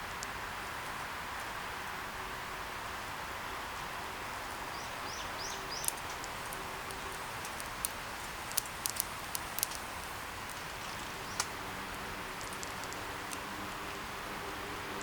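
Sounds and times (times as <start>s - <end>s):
wind hiss: 0.0s - 15.0s
bird chirping: 4.6s - 13.1s
sharp irregular clicks and pops: 5.5s - 13.5s.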